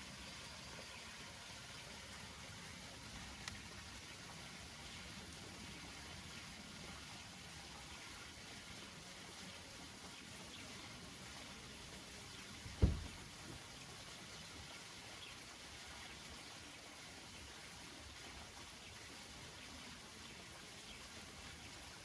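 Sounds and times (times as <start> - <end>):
rain pattering on leaves: 0.8 - 15.8
heavy low thud: 12.7 - 13.3.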